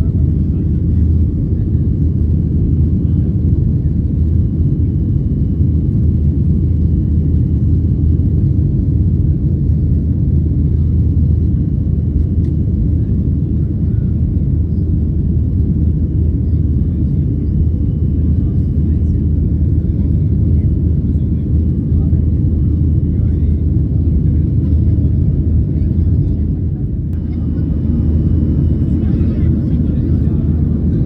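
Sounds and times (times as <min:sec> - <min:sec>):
jet engine rumble in cabin: 0:00.0 - 0:31.0.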